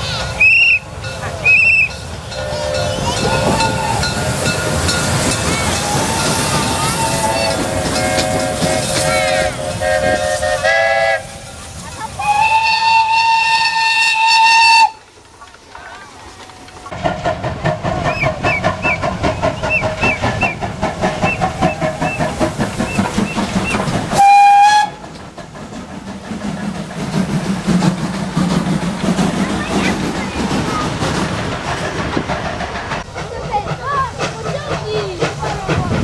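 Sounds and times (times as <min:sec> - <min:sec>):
steam locomotive whistle: 0:00.0 - 0:11.6, 0:12.2 - 0:15.0, 0:24.1 - 0:25.0
locomotive chuffing: 0:00.0 - 0:36.0.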